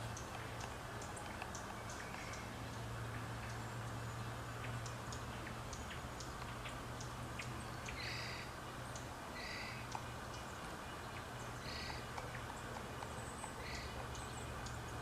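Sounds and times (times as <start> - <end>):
birds high chip notes: 7.0 - 15.0
bird harsh call: 7.9 - 8.6, 9.3 - 9.9, 11.6 - 12.2, 13.3 - 14.1.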